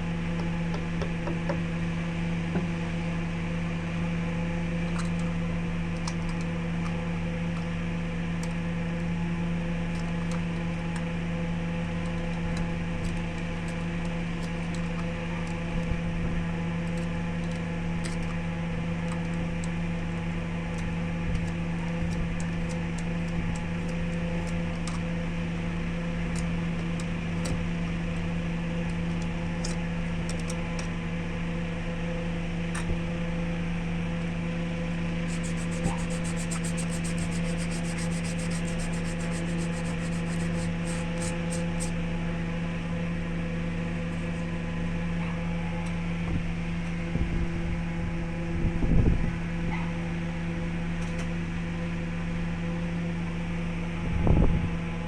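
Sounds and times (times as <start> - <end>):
wood lathe motor hum: 35.3 - 41.9.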